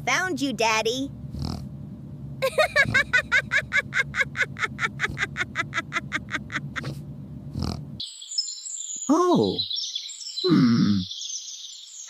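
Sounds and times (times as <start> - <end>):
cartoon character laughing: 2.4 - 7.0.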